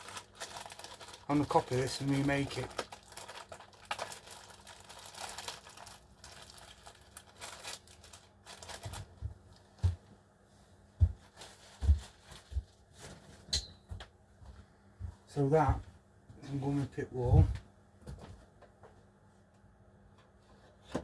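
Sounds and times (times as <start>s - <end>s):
crinkly material rustling and tearing: 0.0s - 9.8s, 11.2s - 13.4s.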